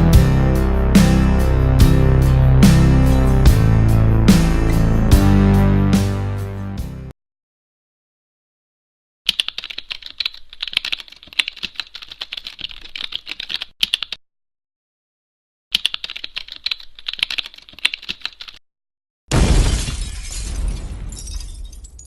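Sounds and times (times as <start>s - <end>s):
typing on computer keyboard: 9.3s - 14.2s, 15.7s - 18.6s.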